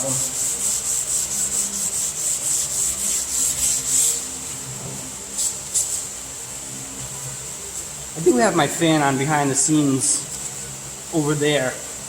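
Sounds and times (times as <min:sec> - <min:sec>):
sandpaper rubbing on car hood: 0:00.0 - 0:04.5.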